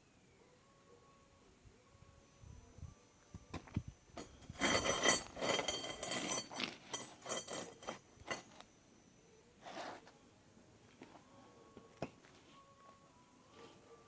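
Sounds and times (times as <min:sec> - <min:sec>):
short scrape: 0:04.2 - 0:08.5.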